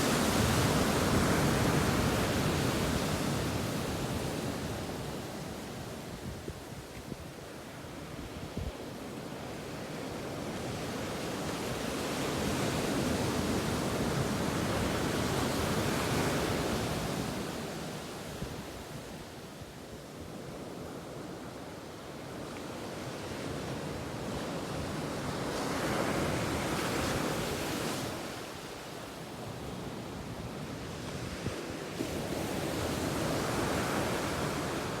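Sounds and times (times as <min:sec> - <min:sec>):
ocean waves breaking on beach: 0:00.0 - 0:06.2, 0:20.6 - 0:35.0.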